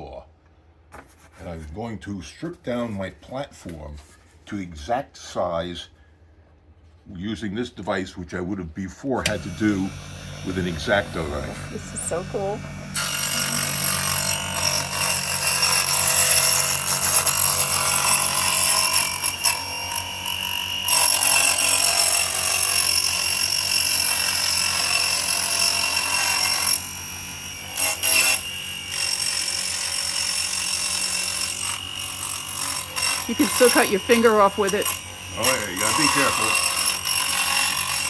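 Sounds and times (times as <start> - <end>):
table saw cutting wood: 9.2 - 38.0.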